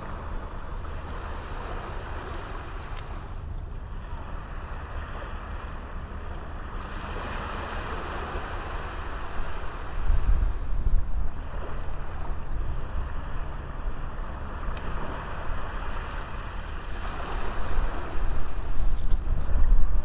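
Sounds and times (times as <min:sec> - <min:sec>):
sea waves breaking on shore: 0:00.0 - 0:20.0
wind buffeting microphone: 0:04.4 - 0:20.0.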